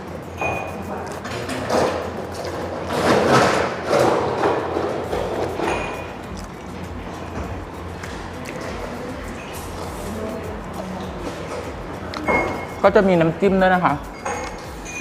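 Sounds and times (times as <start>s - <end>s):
quiet background music: 0.0s - 15.0s
person chewing food: 5.1s - 9.9s.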